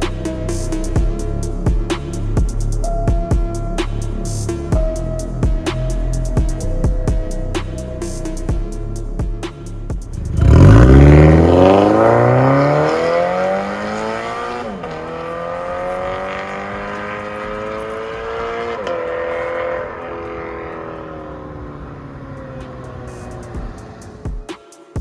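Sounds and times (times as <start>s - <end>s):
car engine accelerating: 10.0s - 24.5s.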